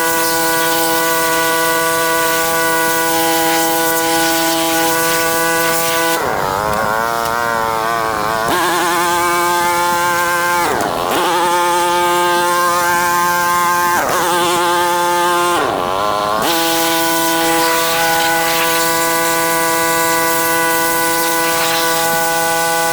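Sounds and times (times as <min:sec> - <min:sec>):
pressure washer hum and hiss: 0:00.0 - 0:06.2, 0:16.5 - 0:22.9.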